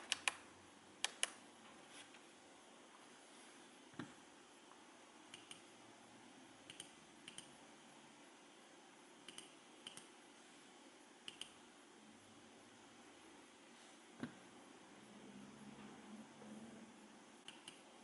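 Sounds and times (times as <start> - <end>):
small buttons clicking: 5.3 - 5.6, 6.7 - 7.5, 9.3 - 10.1, 11.3 - 11.6, 17.4 - 17.8.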